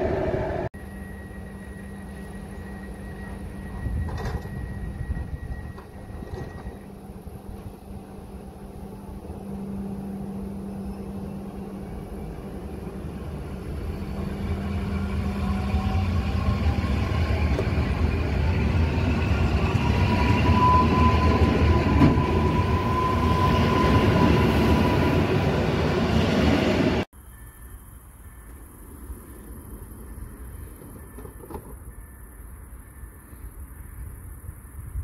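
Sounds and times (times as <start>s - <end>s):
electric train pulling away: 0.0s - 27.1s
train wheels rolling: 1.4s - 27.0s, 29.2s - 32.1s.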